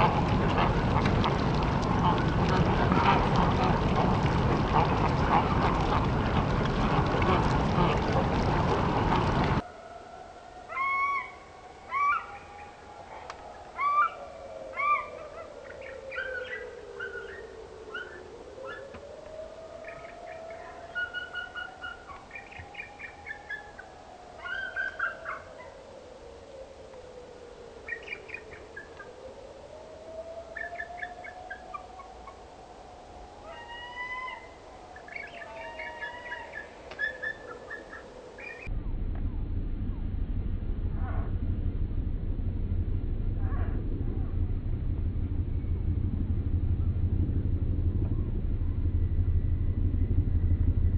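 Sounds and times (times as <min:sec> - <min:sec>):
bird hooting calls: 0:09.1 - 0:25.8, 0:30.0 - 0:32.4, 0:33.4 - 0:38.7
long low whistle-like tone: 0:09.6 - 0:50.9
birds chirping and whistling: 0:35.0 - 0:38.7
faint falling tone: 0:38.5 - 0:50.9.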